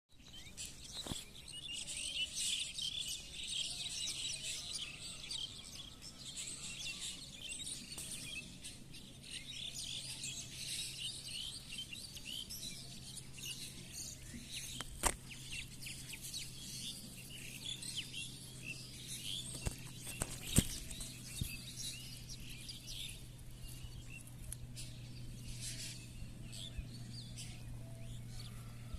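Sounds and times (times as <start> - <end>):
small birds chirping: 0.1 - 28.9
steady low hum: 0.2 - 28.9.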